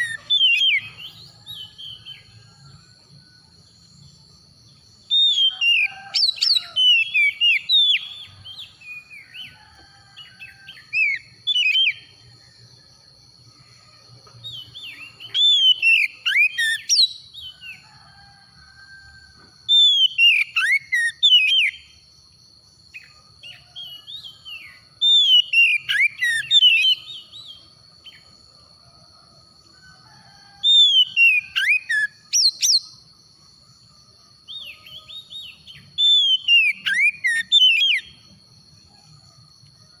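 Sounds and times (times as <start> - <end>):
bird singing whistled phrases: 14.6 - 17.2, 19.8 - 21.8, 34.6 - 38.0.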